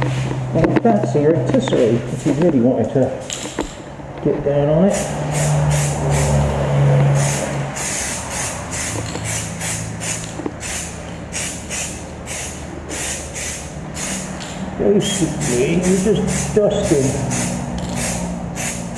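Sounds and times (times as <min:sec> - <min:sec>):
spray can hissing in bursts: 0:04.9 - 0:06.4, 0:07.2 - 0:14.4, 0:15.0 - 0:18.9.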